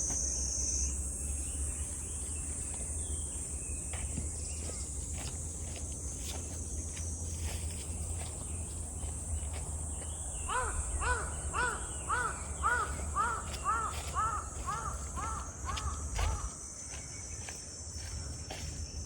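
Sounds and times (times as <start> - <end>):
insects hissing: 0.0 - 19.0
crow cawing: 10.5 - 16.6.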